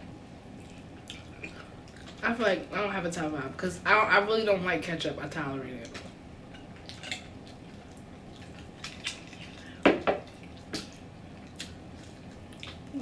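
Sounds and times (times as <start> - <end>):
person chewing food: 0.5 - 2.2, 6.8 - 13.0.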